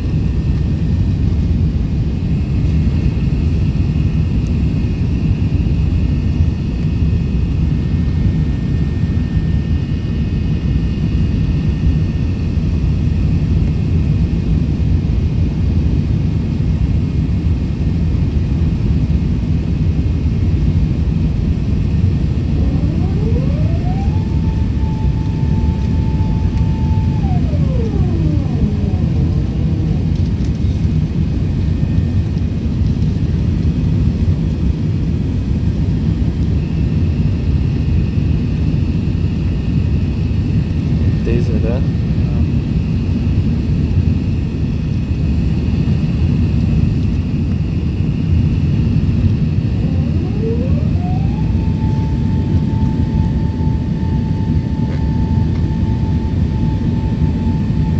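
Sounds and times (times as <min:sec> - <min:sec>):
jet engines rumbling: 0:00.0 - 0:57.9
rising whine: 0:21.2 - 0:57.9.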